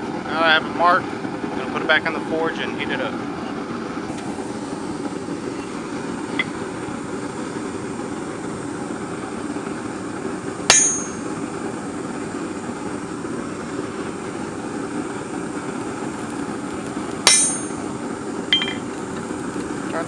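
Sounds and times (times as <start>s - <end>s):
steel clinking on steel: 10.7s - 11.3s, 17.2s - 17.8s, 18.5s - 18.9s.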